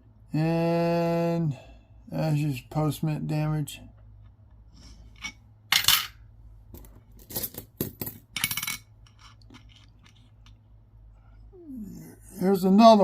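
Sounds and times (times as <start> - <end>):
metal coins clinking: 5.2 - 6.2, 6.8 - 10.2.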